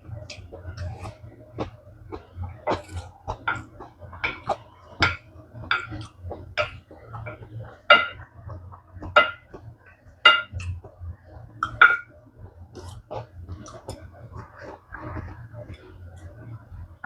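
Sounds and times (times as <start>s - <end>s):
wet chewing and slurping: 0.1s - 7.9s, 12.7s - 16.4s.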